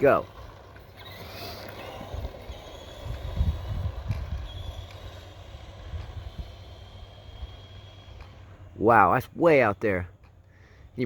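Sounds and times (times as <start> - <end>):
wind buffeting microphone: 0.0 - 8.8
high electric motor whine: 0.0 - 9.4.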